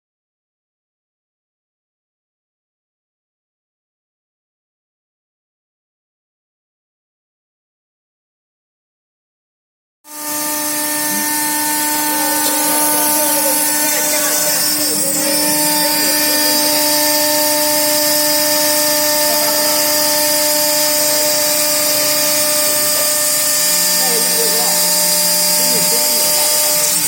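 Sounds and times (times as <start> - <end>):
machine whine with held tones: 10.1 - 27.0.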